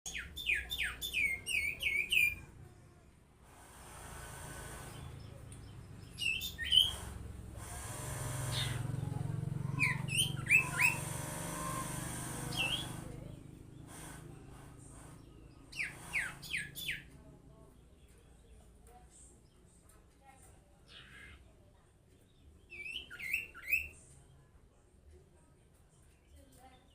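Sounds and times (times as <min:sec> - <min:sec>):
bird whistling: 0:09.8 - 0:11.1, 0:22.8 - 0:23.9.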